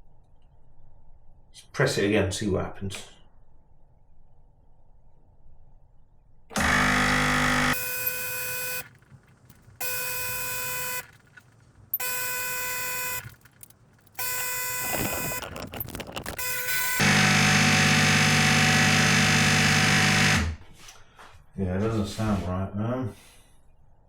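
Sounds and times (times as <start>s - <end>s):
water pump buzzing: 6.5s - 20.6s.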